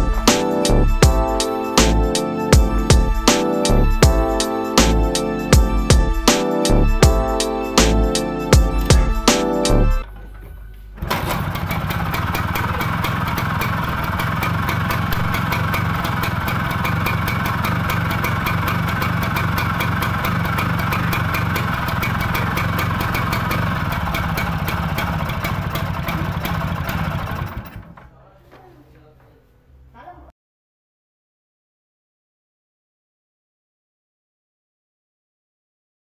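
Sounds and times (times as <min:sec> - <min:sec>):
scooter engine running: 0:11.0 - 0:28.0.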